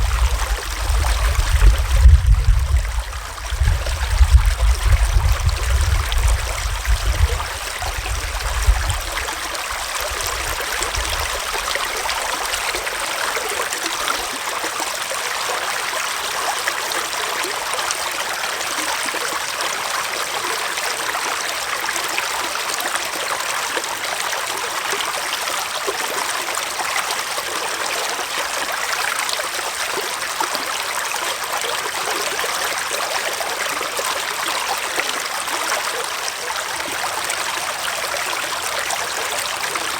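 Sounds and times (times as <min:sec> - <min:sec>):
low rumble: 0:00.0 - 0:09.2
stream trickling over rocks: 0:00.0 - 0:39.9.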